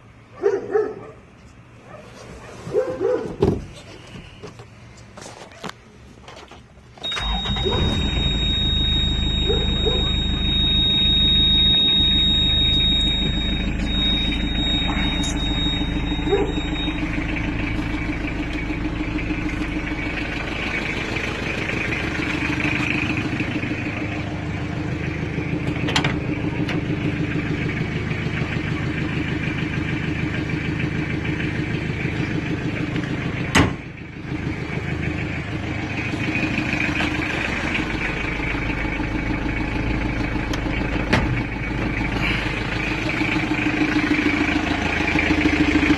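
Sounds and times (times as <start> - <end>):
diesel engine running: 0.0 - 45.9
high steady tone: 7.1 - 18.7.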